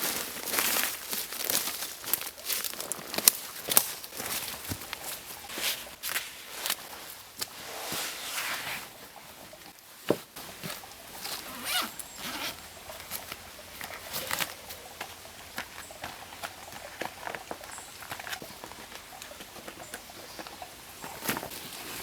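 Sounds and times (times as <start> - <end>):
gear rustling: 10.4 - 14.8
zipper being pulled: 11.3 - 12.6.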